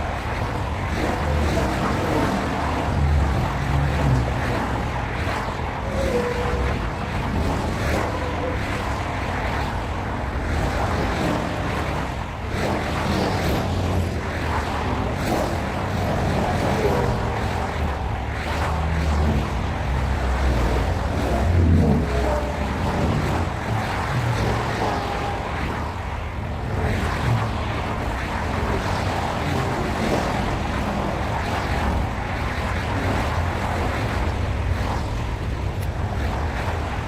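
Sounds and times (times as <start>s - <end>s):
train rumbling past: 0.0s - 37.0s
faint rail squeals and clicks: 0.1s - 12.0s, 15.2s - 27.7s.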